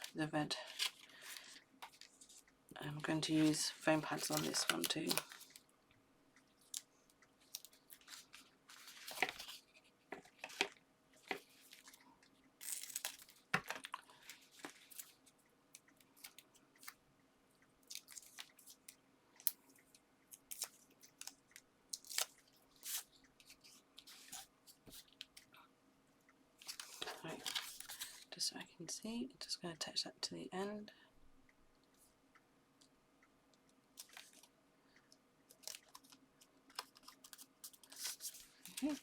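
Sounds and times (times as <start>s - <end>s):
paper and card rustling: 0.0s - 5.6s, 7.4s - 12.0s, 26.6s - 28.3s, 35.6s - 39.0s.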